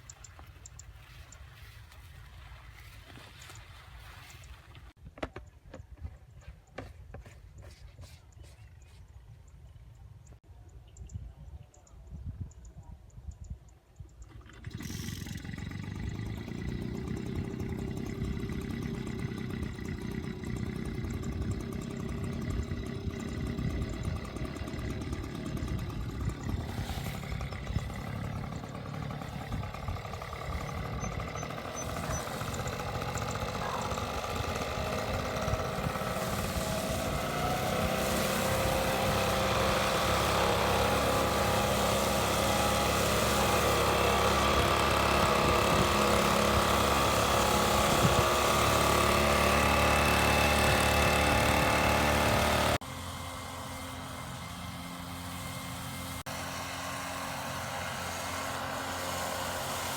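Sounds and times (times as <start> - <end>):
engine running: 14.2 - 59.9.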